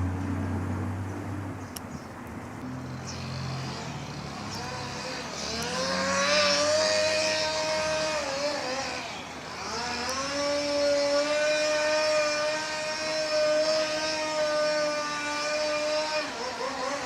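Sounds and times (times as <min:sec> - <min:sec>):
chainsaw engine revving: 0:02.6 - 0:17.0.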